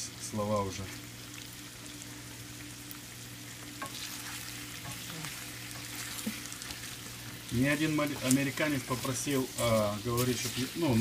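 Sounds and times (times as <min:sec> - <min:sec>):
mushrooms and onion sizzling: 0:00.0 - 0:11.0.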